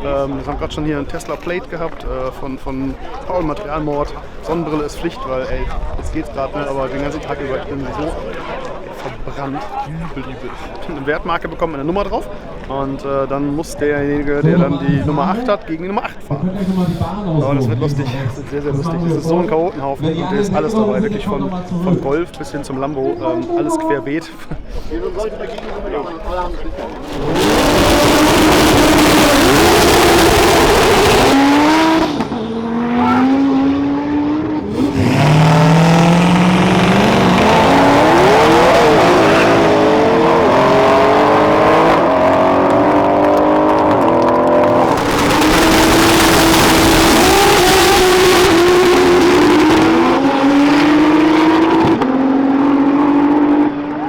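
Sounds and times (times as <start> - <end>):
race car engines revving: 26.9 - 54.0
race car accelerating through gears: 27.0 - 54.0.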